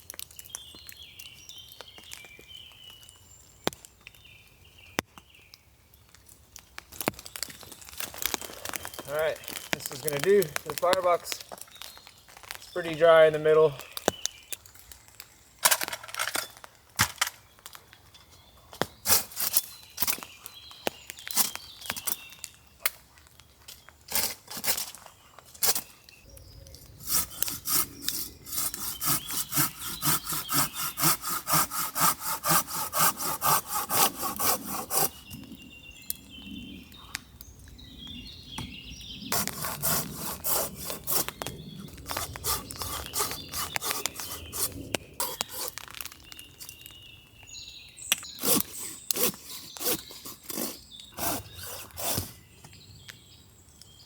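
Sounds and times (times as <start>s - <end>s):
hand saw cutting log: 27.0s - 35.4s, 39.3s - 45.9s, 48.3s - 52.4s.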